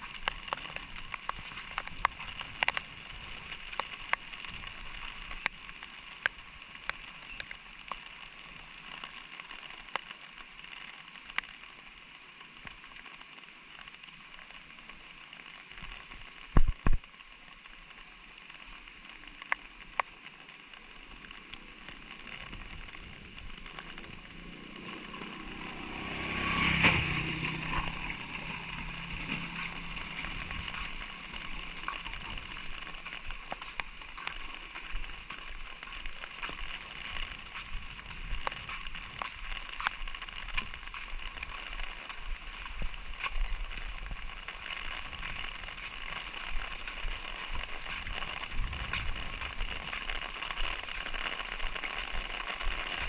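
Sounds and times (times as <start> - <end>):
light rain dripping: 0.0 - 53.0
vehicle engine passing: 23.6 - 32.9.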